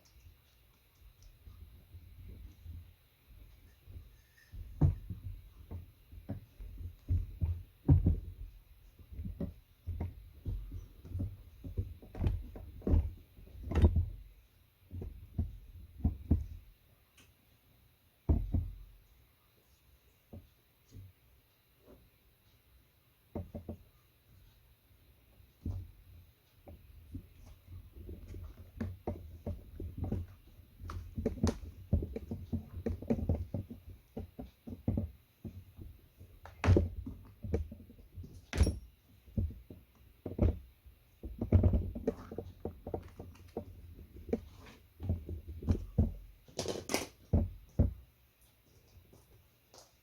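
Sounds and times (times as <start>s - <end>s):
knocks and clatters of handling parts: 2.2s - 16.7s, 18.3s - 19.0s, 23.3s - 23.9s, 25.6s - 48.1s.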